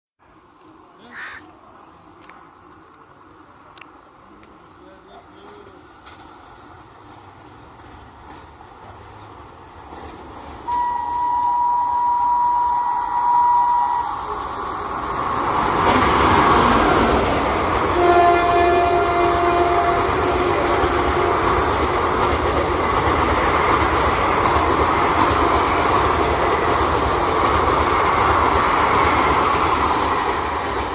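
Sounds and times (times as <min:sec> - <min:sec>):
train rushing past: 0:04.8 - 0:30.9
train wheel clatter: 0:05.4 - 0:11.2, 0:15.4 - 0:30.9
train horn: 0:10.7 - 0:14.4, 0:17.9 - 0:21.7.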